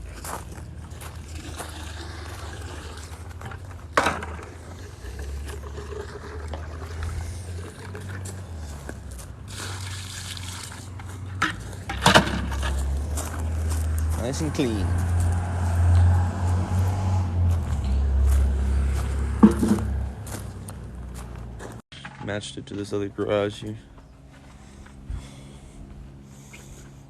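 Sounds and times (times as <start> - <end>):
water running into bucket: 1.2 - 3.5, 4.6 - 8.3, 9.5 - 10.9
bucket knocking: 19.4 - 20.0.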